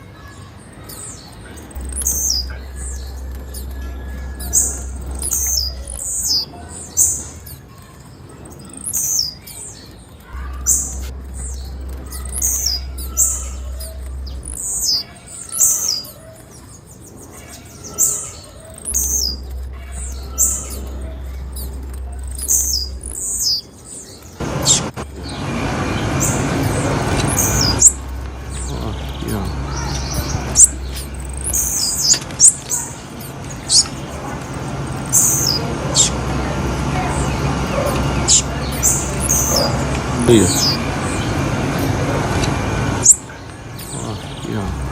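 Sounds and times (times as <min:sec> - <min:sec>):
bird high chirps: 0:00.0 - 0:44.9
rushing noise: 0:24.4 - 0:44.9.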